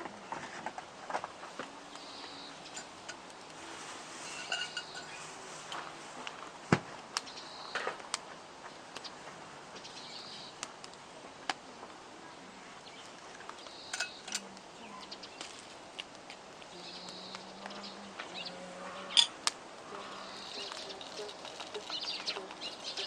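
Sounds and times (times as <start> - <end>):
campfire crackling and popping: 0.6 - 12.0, 13.0 - 18.4, 19.2 - 23.0
birds calling: 1.8 - 3.2, 4.2 - 5.2, 12.7 - 15.7, 16.7 - 23.0.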